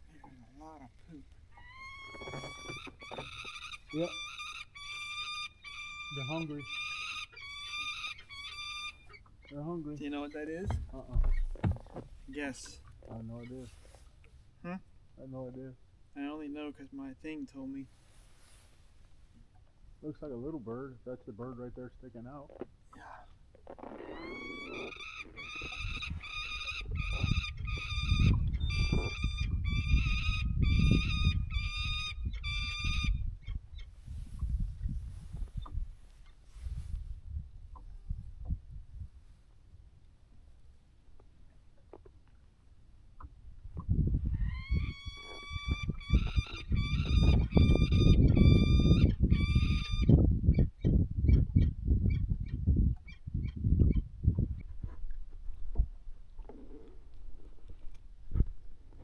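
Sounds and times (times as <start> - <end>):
bird calling: 0.1 - 10.6, 23.0 - 33.9, 44.3 - 50.2.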